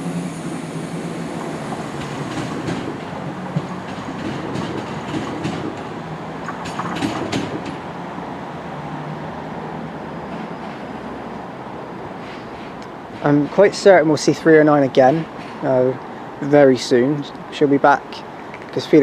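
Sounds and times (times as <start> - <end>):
train engine running: 0.0 - 8.4
train wheels on rails: 0.0 - 8.5, 10.2 - 11.5, 12.1 - 16.6
wheel clicks over rail joints: 1.4 - 8.0.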